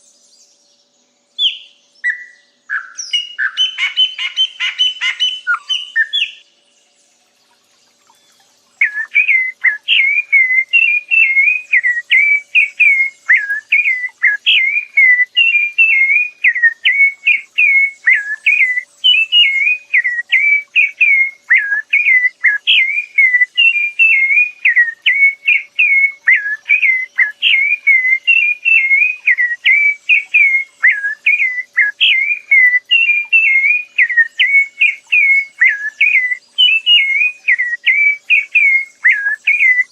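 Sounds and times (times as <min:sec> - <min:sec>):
songbird whistling: 0:00.0 - 0:06.5, 0:08.1 - 0:39.9.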